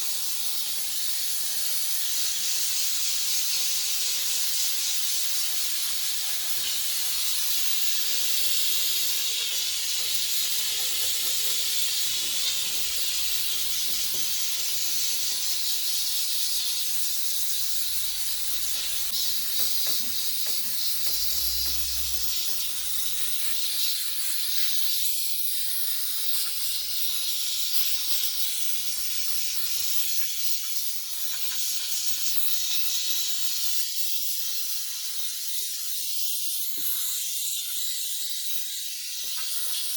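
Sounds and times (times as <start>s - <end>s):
pressurised jet hissing: 0.0s - 25.0s.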